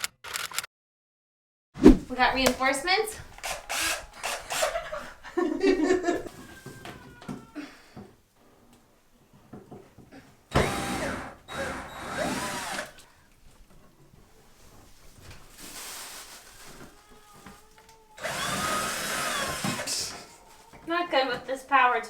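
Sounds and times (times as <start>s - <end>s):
power drill motor whirring: 3.2s - 5.2s, 10.5s - 13.1s, 18.2s - 20.4s.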